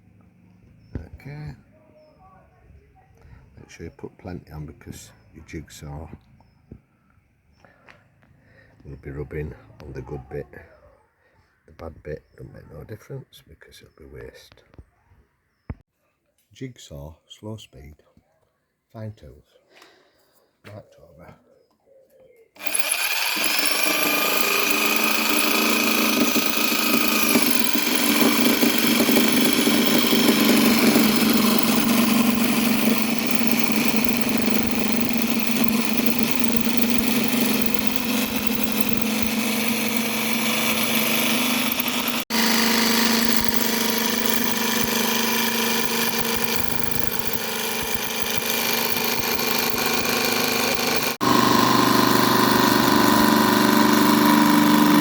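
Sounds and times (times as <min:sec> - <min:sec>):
electric jigsaw cutting plastic: 0:22.6 - 0:55.0.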